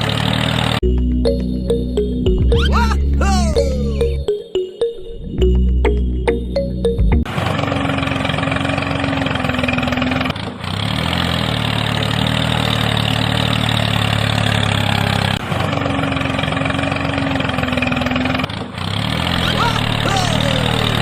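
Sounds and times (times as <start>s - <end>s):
small engine humming: 0.0s - 0.8s, 7.3s - 21.0s.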